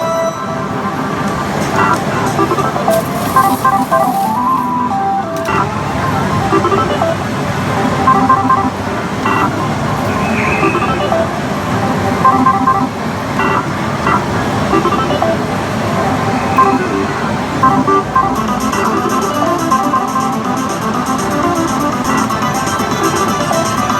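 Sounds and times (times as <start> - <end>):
slot machines roaring: 0.4 - 10.0, 10.6 - 23.9
electronic beeps and jingles: 1.7 - 7.2, 7.9 - 11.3, 12.2 - 15.4, 17.6 - 20.4.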